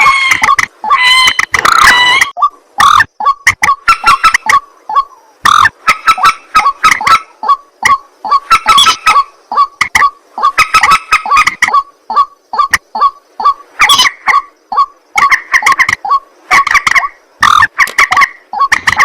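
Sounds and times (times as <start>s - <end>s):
birds giving harsh calls: 0.0s - 19.0s.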